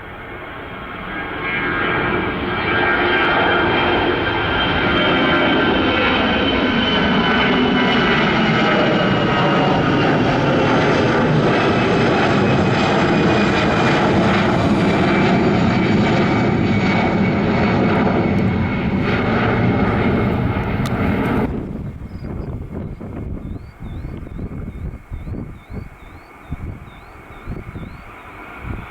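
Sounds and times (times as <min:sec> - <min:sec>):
faint wind: 0:00.0 - 0:28.9
jet airliner passing: 0:00.0 - 0:28.9.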